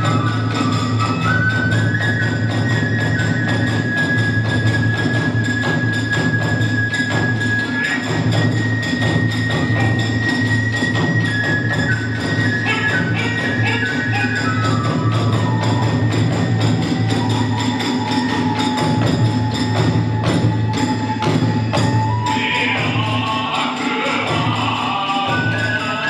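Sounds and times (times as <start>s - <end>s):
bamboo flute high notes: 0.0s - 26.0s
rapid drum beat: 12.3s - 26.0s.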